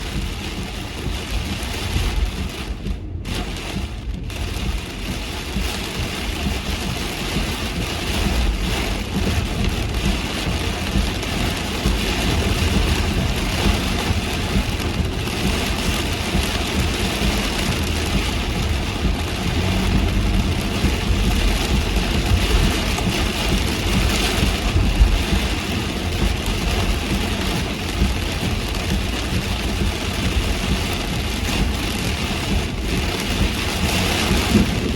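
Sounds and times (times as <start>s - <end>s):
heavy rain on a car: 0.0s - 34.9s
low rumble of road and engine: 0.0s - 34.9s.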